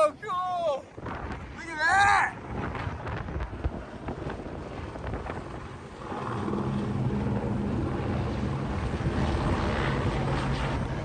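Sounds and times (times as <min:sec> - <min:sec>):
wind on microphone: 0:00.0 - 0:11.0
passing vehicle engine drone: 0:05.3 - 0:11.0.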